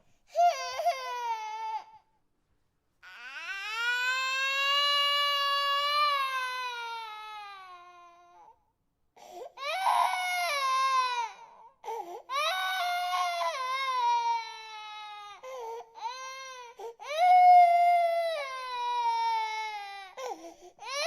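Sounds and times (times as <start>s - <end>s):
baby crying: 0.3s - 2.0s, 3.0s - 8.5s, 9.6s - 21.0s.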